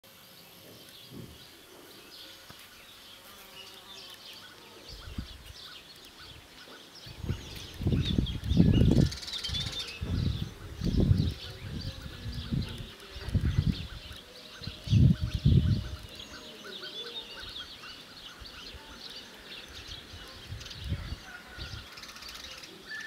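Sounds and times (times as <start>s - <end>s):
small birds chirping: 0.1s - 23.0s
wind buffeting microphone: 4.9s - 5.6s, 6.3s - 16.4s, 19.8s - 21.9s.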